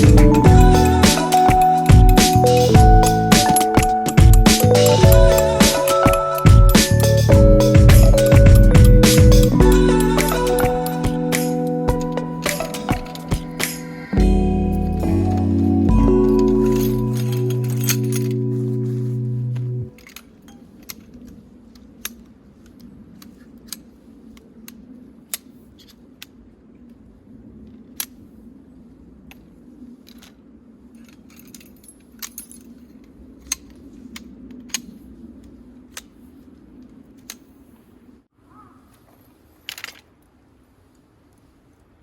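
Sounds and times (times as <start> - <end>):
small metal items clinking: 16.2 - 18.8.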